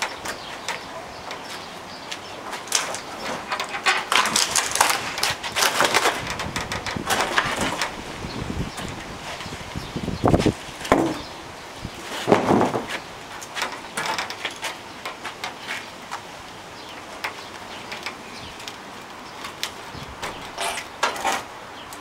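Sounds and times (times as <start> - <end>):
wooden door frame wrenched apart: 2.7 - 8.0, 12.2 - 13.0.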